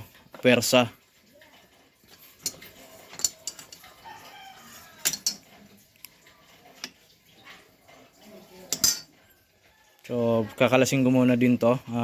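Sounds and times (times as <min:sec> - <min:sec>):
metal parts clinking: 0:02.4 - 0:03.9, 0:04.7 - 0:05.4, 0:08.7 - 0:09.1.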